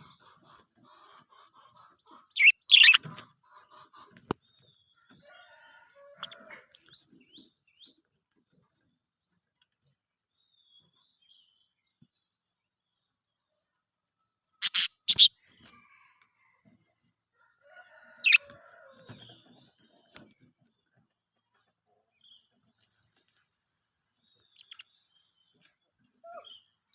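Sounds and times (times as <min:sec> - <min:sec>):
budgies chattering and chirping: 0:00.0 - 0:04.7, 0:14.6 - 0:15.3, 0:18.2 - 0:18.5, 0:24.4 - 0:24.9.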